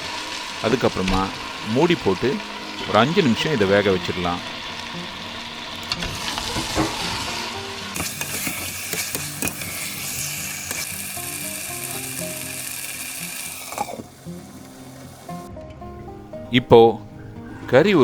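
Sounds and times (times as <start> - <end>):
chicken sizzling in a pan: 0.0 - 15.5
spatula scraping a pan: 4.5 - 11.2.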